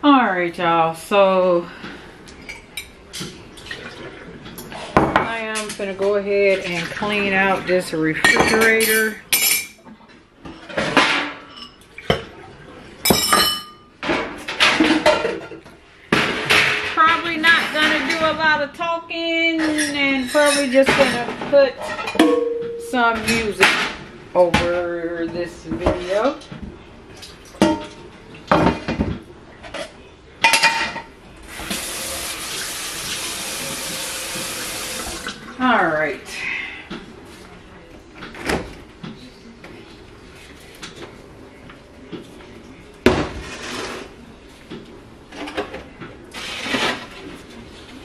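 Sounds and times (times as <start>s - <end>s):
glassware and dishes clinking: 8.2s - 9.8s, 10.4s - 12.3s, 13.0s - 14.0s, 19.6s - 23.6s, 29.7s - 31.1s
tap water running into sink: 31.5s - 35.4s.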